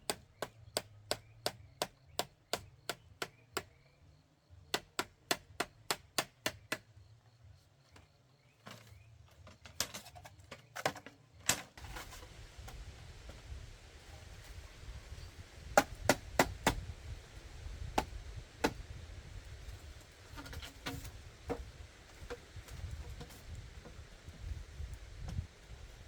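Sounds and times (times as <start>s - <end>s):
blade chopping bamboo: 15.8s - 16.8s.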